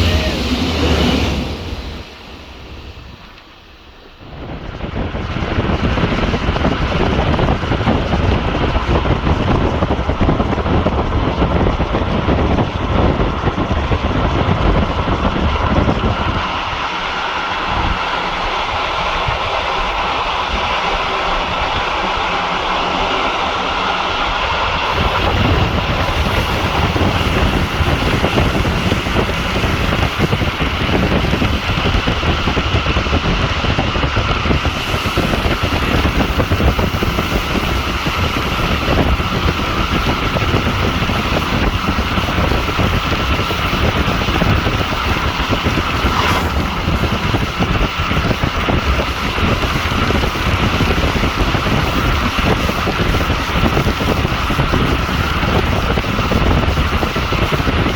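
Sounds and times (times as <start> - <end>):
rushing wind noise: 0.0 - 57.9
train wheels rumbling on track: 0.0 - 57.9
brief sharp sound: 45.7 - 47.8.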